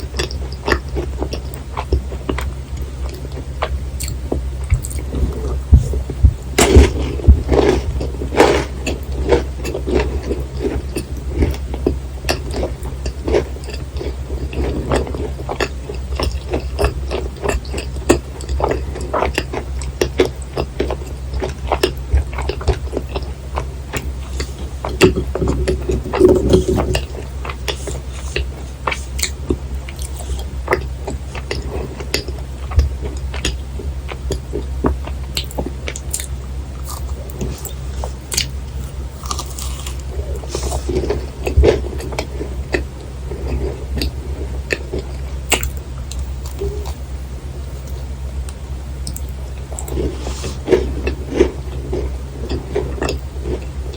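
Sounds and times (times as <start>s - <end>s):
wet chewing mouth clicks: 47.8s - 53.7s.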